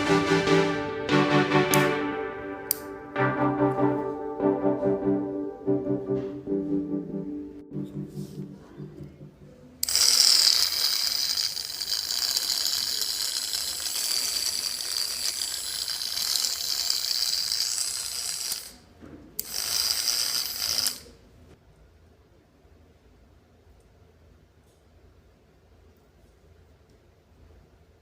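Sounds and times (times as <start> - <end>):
small electric motor buzzing: 9.8 - 18.8, 19.4 - 21.0.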